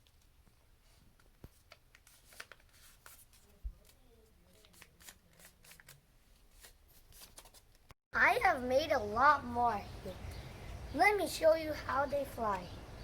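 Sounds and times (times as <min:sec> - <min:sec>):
paper folding crackles: 0:01.1 - 0:07.8.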